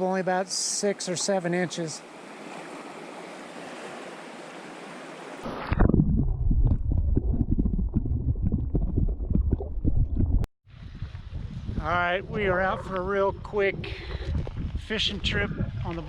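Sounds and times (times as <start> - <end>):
river water rushing: 2.0 - 5.6
wind buffeting microphone: 5.7 - 16.0.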